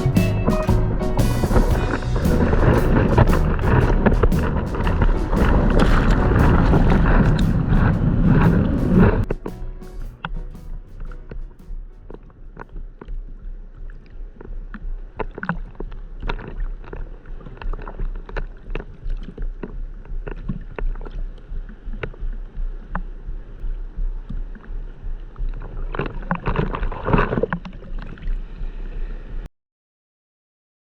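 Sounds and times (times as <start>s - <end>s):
seawater splashing: 0.0s - 11.8s
low rumble: 0.0s - 27.1s.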